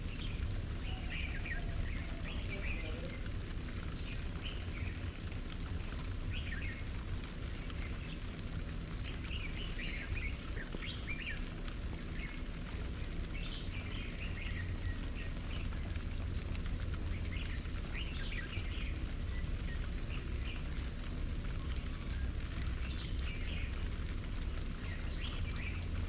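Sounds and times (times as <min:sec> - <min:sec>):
small birds chirping: 0:00.0 - 0:26.0
steady low rumble: 0:00.0 - 0:26.0.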